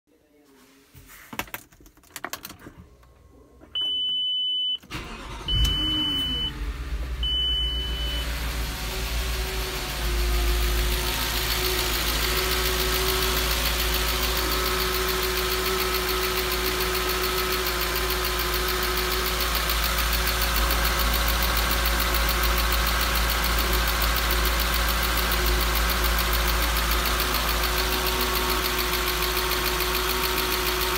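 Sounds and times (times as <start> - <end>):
car engine starting and idling: 2.2 - 30.9
short electronic beeps: 3.8 - 6.6, 7.2 - 8.3.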